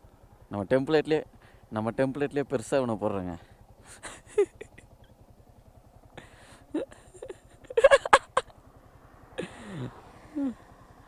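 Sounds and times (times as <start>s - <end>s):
men's vocal sounds and laughs: 3.8s - 5.1s, 6.2s - 8.5s, 9.4s - 10.6s
falling cry: 7.7s - 8.4s.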